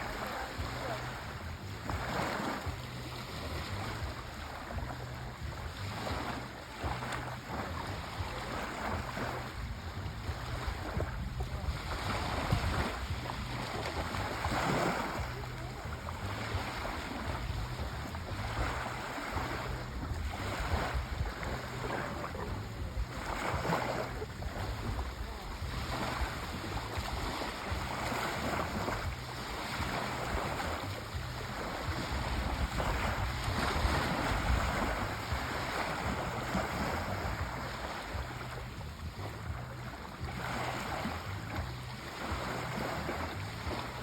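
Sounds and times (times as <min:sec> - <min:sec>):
sea waves washing in: 0:00.0 - 0:44.0
steady low rumble: 0:00.0 - 0:44.0.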